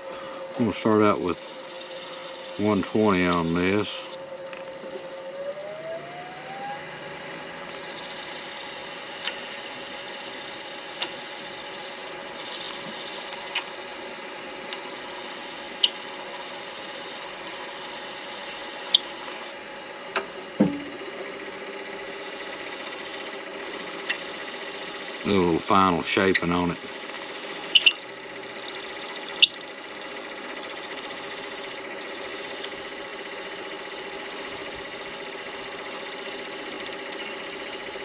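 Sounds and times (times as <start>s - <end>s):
lathe motor hum: 0.0s - 38.0s
hissing scrape of sanding: 7.8s - 19.5s
sharp ticks: 14.7s - 15.2s, 32.4s - 32.9s.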